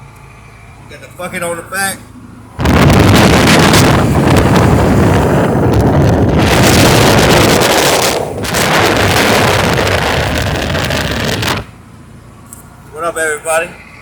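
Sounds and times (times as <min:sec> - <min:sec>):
road and engine noise: 0:00.0 - 0:14.0
wind buffeting microphone: 0:02.6 - 0:11.7.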